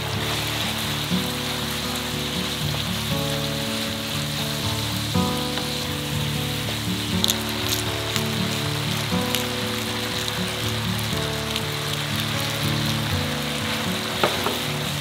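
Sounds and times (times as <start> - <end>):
gentle background music: 0.0 - 15.0
pasta sizzling in a frying pan: 0.0 - 15.0.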